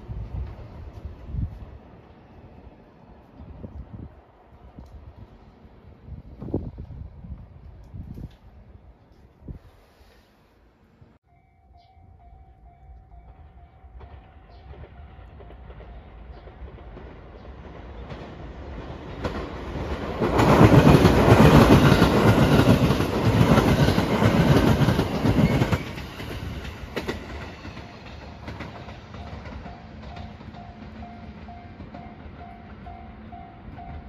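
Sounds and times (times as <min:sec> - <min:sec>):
electric train passing: 0:00.0 - 0:09.3, 0:10.5 - 0:34.0
wheels clacking over rail joints: 0:13.3 - 0:34.0.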